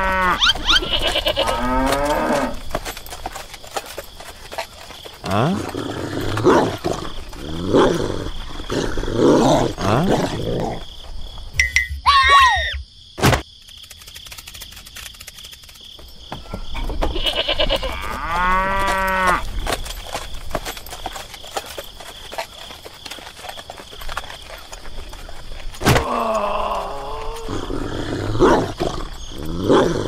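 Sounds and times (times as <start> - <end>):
cow mooing: 0.0 - 2.6.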